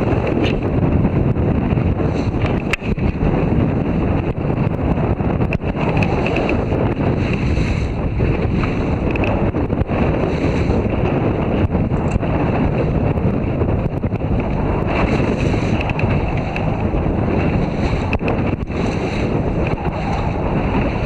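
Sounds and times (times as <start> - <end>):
water and waves washing: 0.0 - 21.0
wind buffeting microphone: 0.0 - 21.0.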